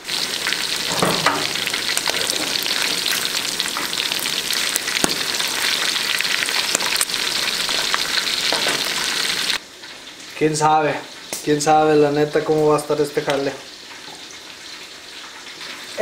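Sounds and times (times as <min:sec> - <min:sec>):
meat sizzling in hot oil: 0:00.0 - 0:16.0
metal tongs turning meat: 0:00.8 - 0:09.2.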